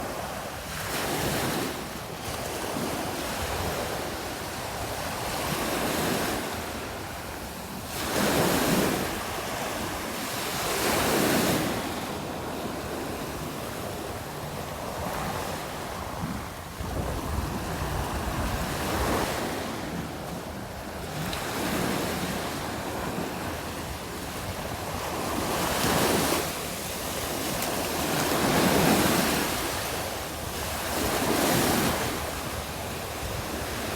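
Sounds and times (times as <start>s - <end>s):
waves breaking on a beach: 0.0s - 33.9s
wind buffeting microphone: 14.7s - 33.9s.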